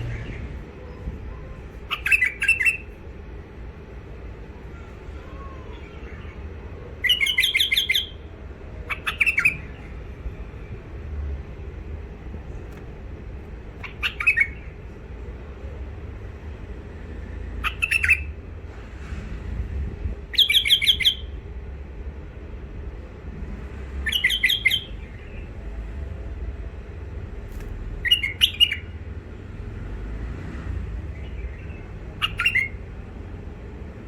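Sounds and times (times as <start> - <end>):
steady low hum: 0.0 - 20.4, 21.2 - 34.0
bird chattering calls: 1.8 - 2.9, 7.0 - 8.2, 8.8 - 9.9, 13.8 - 14.7, 17.6 - 18.3, 31.6 - 32.8.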